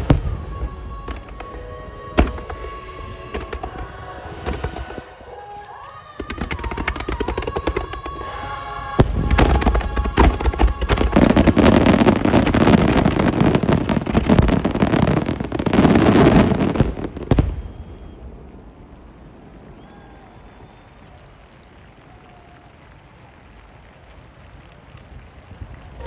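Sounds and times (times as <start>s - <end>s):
music: 0.0s - 17.0s
fireworks bursting and crackling: 0.0s - 26.0s.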